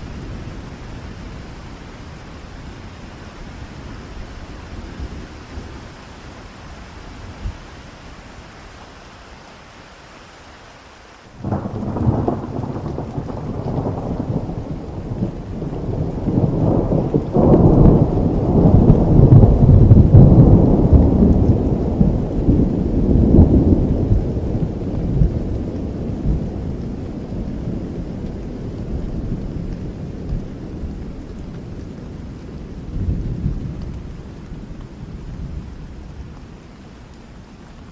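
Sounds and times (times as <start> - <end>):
steady rain: 0.0 - 37.9
thunder rumbling: 11.4 - 36.6.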